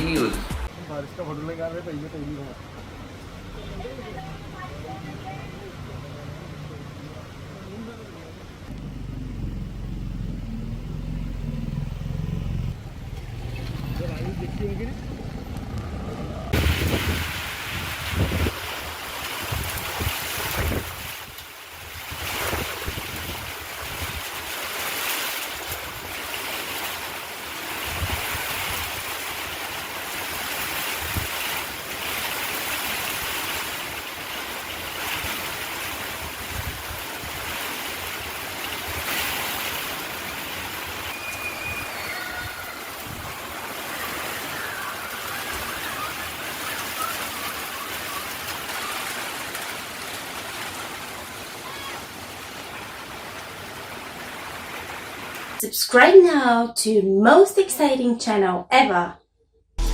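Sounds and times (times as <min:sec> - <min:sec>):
rain falling: 0:00.0 - 0:55.6
wind rumbling on microphone: 0:08.7 - 0:24.5, 0:27.8 - 0:29.1, 0:30.9 - 0:31.4, 0:35.2 - 0:37.6, 0:41.6 - 0:46.2.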